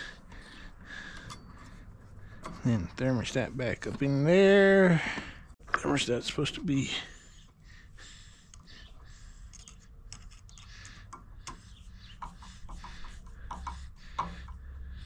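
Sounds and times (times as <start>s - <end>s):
hands clicking and tapping parts: 9.4s - 15.0s.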